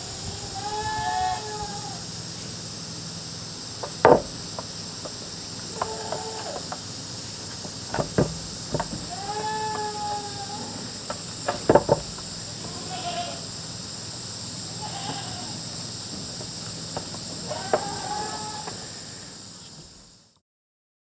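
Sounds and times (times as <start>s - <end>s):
high insect drone: 0.0s - 20.4s
goats bleating: 0.3s - 2.0s, 5.7s - 6.6s, 9.0s - 10.9s, 12.6s - 13.5s, 14.7s - 15.6s, 17.4s - 19.0s
sharp knocks: 3.9s - 4.4s, 7.9s - 9.1s, 11.4s - 12.2s.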